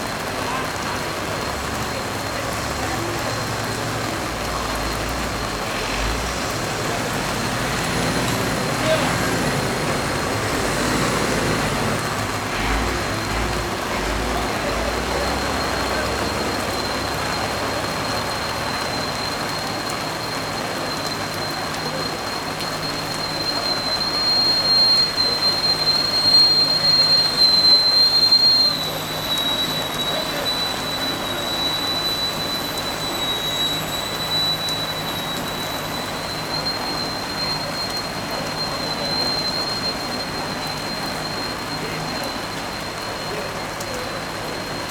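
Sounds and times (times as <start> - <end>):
water spraying from fire hoses: 0.0 - 44.9.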